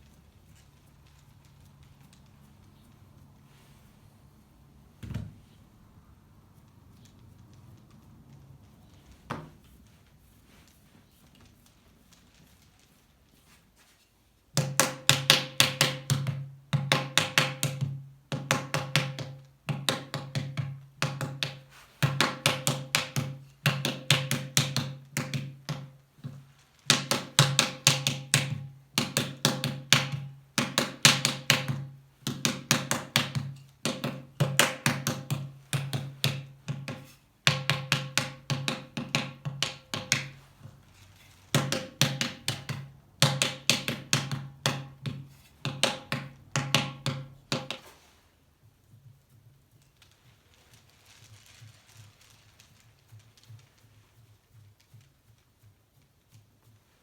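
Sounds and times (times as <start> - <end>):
paddle tapping clay: 14.5 - 40.8, 41.5 - 48.0.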